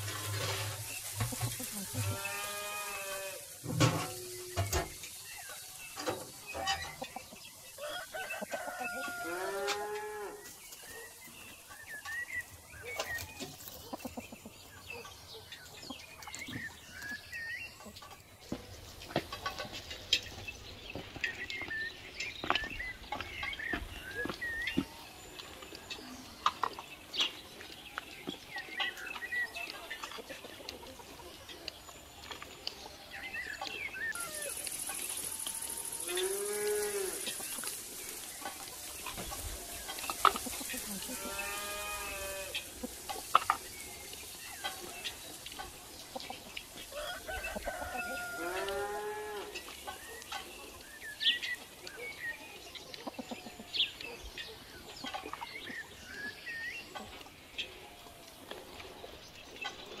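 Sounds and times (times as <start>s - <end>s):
small birds chirping: 0.0s - 60.0s
cow mooing: 36.0s - 37.2s.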